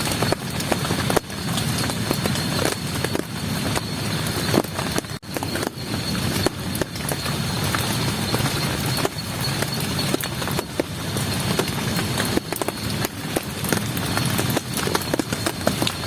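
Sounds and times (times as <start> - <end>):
heavy rain falling: 0.0 - 16.0
raindrops tapping close by: 0.0 - 16.0.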